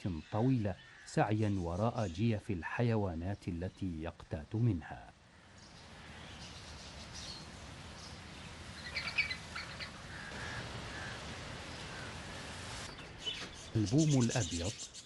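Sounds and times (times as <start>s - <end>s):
outdoor background hiss: 0.0s - 15.0s
bird chirps and calls: 8.8s - 10.3s, 12.9s - 15.0s.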